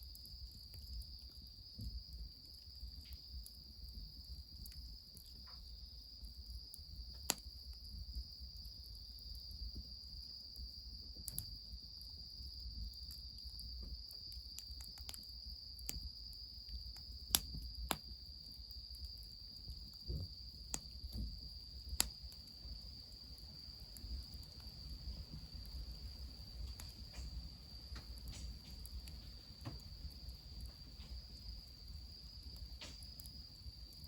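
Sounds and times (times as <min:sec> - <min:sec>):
insects trilling: 0:00.0 - 0:34.0
wood fire crackling: 0:00.0 - 0:34.0.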